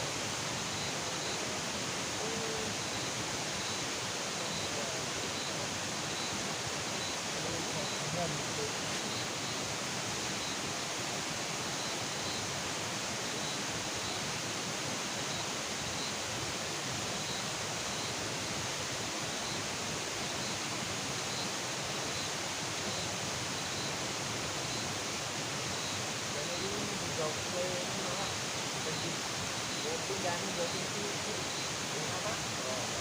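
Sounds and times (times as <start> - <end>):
continuous night hiss: 0.0 - 33.0
faint high chirps: 0.6 - 1.6.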